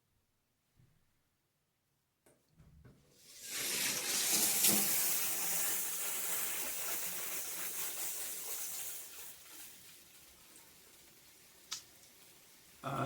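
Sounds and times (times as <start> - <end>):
shower head spraying water: 3.3 - 12.8.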